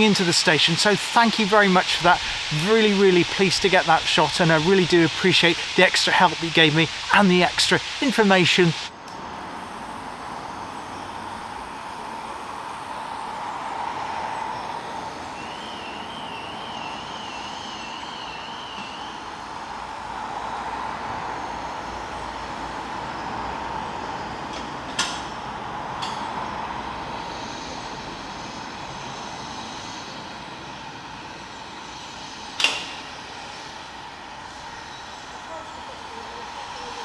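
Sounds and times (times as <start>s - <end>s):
train rushing noise: 0.0s - 8.9s.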